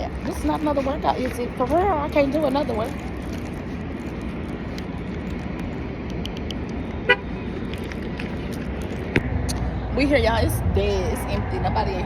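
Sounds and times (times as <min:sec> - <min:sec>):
traffic rumble: 0:00.0 - 0:12.0
car horn toot: 0:07.0 - 0:07.4.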